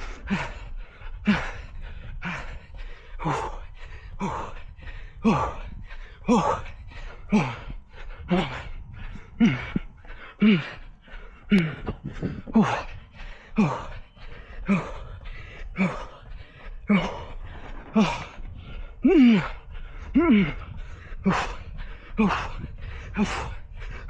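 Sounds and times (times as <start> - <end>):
runner breathing hard: 0.0 - 24.0.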